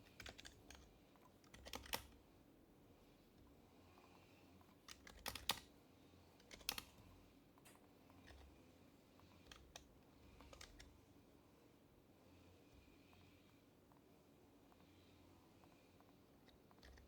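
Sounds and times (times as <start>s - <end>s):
faint keyboard keystrokes: 0.0s - 2.2s, 4.9s - 5.7s, 6.4s - 8.5s, 9.4s - 11.0s.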